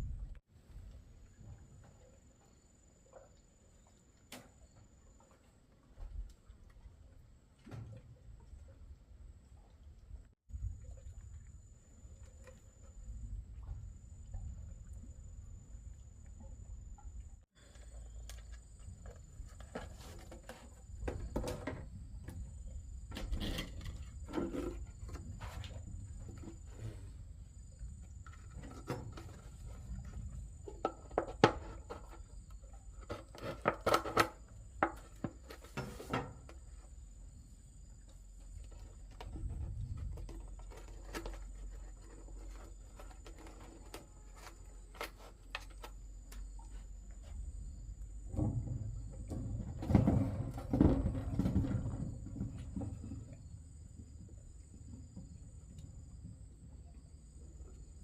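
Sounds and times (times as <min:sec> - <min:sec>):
knocks and clatter of handling: 0:48.2 - 0:53.4.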